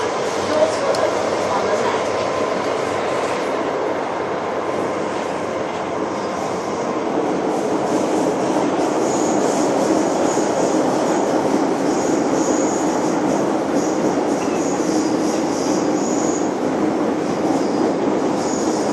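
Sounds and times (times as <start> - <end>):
metro train rumbling on track: 0.0 - 18.9
high wheel squeal: 13.8 - 16.5.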